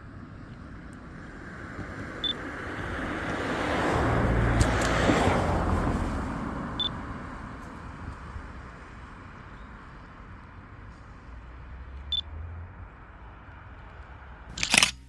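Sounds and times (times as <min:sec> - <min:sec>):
vehicle driving past: 0:00.0 - 0:09.4.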